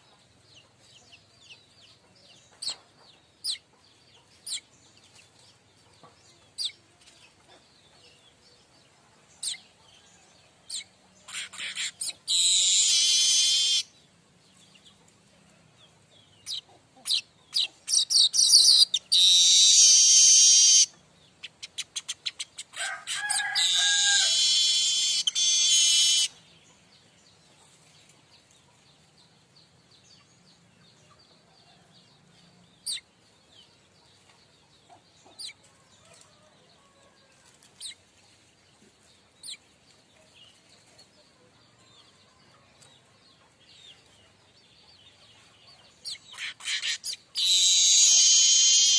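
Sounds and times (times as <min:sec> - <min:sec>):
bird buzzy wheezing song: 0:10.7 - 0:13.9, 0:16.5 - 0:20.9, 0:23.6 - 0:26.4, 0:46.3 - 0:48.9
bird high chirps: 0:10.7 - 0:14.0, 0:16.4 - 0:26.5, 0:32.8 - 0:33.1, 0:45.7 - 0:48.9.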